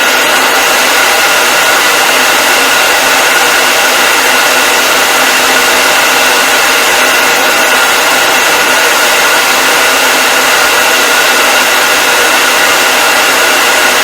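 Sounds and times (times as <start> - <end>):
hair dryer running: 0.0 - 14.0.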